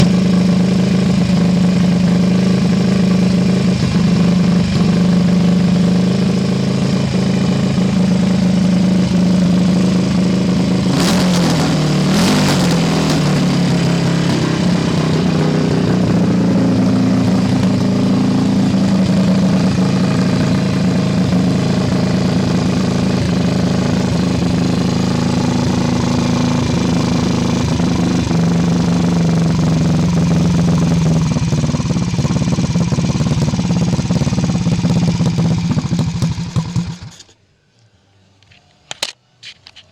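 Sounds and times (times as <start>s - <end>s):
motorcycle engine running: 0.0s - 37.3s.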